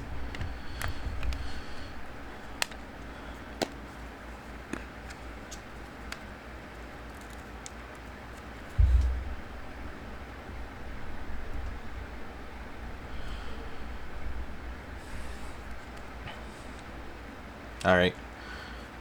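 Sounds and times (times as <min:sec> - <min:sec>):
low steady hum: 0:08.3 - 0:19.0.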